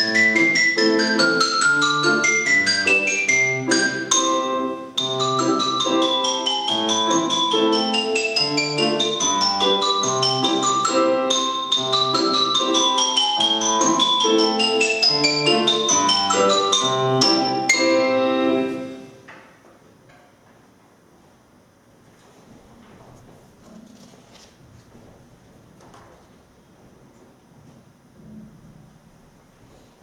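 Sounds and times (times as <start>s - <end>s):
solo mallet or piano music: 0.0s - 19.1s.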